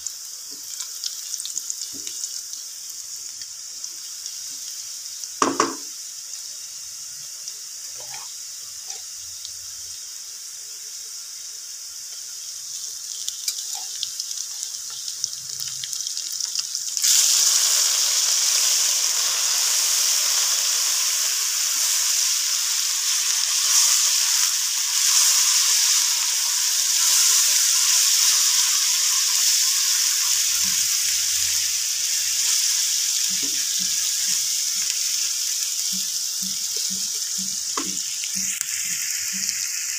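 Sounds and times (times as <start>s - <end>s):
onions sizzling in oil: 0.0s - 39.9s.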